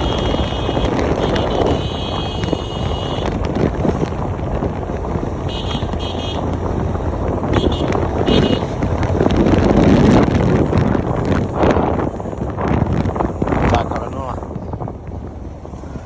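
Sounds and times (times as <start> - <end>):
short high horn beeps: 0.0 - 3.2
motorcycle road and wind noise: 0.0 - 16.0
wind buffeting microphone: 0.0 - 16.0.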